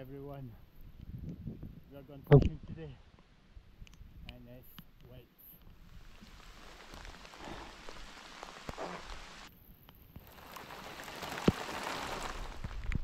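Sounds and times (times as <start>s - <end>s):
rain falling on water: 5.7s - 13.0s.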